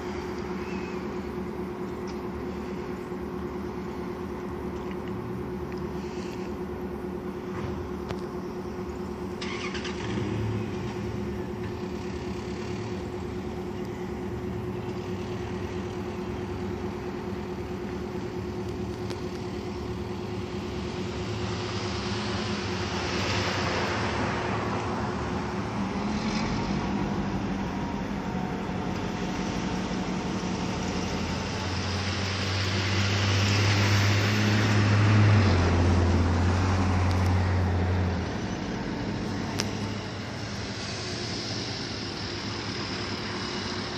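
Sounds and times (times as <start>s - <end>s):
diesel locomotive engine hum: 0.0s - 43.9s.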